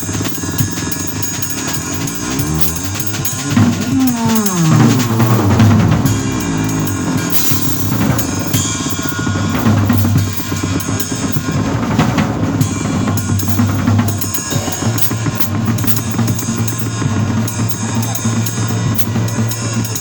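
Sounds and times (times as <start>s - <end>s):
drum kit playing: 1.4s - 17.5s
bass playing: 1.8s - 10.2s.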